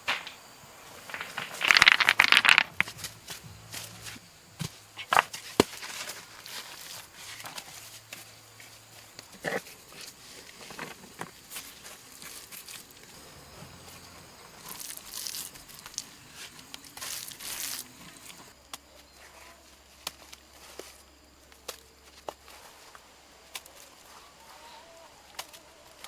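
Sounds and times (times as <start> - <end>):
rustling and crinkling handling: 0.9 - 8.9, 14.6 - 18.5.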